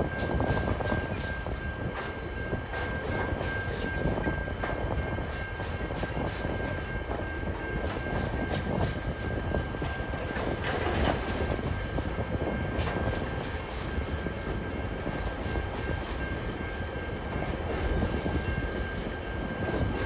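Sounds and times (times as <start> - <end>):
freight train rumble: 0.0 - 20.0
wheels clicking over rail joints: 9.8 - 16.5.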